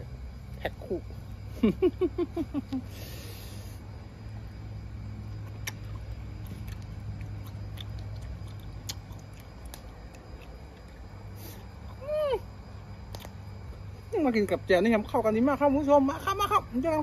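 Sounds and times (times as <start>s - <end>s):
steady low hum: 0.0s - 17.0s
chewing with mouth smacks: 5.4s - 11.3s, 13.1s - 13.4s.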